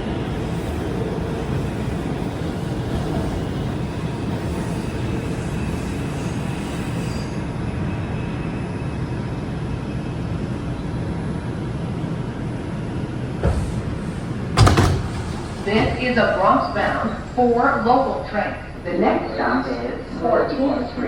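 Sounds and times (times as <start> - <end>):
subway train wheels rumbling: 0.0 - 21.0.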